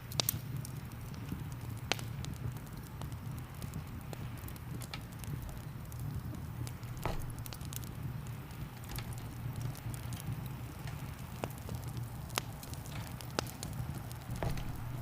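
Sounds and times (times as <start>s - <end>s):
wood fire crackling and popping: 0.0s - 15.0s
rain hissing: 0.7s - 15.0s
low rumble: 6.8s - 7.8s, 14.2s - 15.0s.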